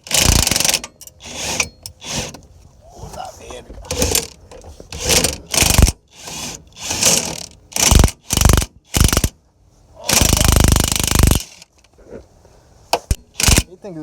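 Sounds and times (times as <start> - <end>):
ratchet wrench clicking: 5.5 - 5.9, 13.1 - 13.7.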